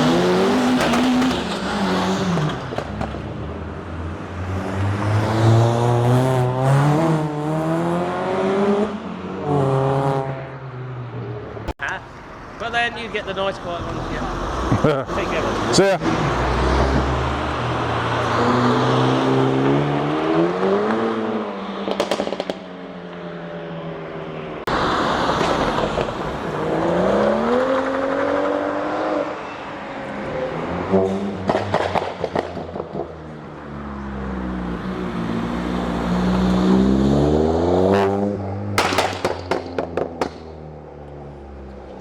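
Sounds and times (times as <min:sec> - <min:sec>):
car engines revving hard: 0:00.0 - 0:11.2, 0:13.1 - 0:22.8, 0:23.4 - 0:42.0
exhaust crackles and pops: 0:21.9 - 0:22.7, 0:38.8 - 0:40.5.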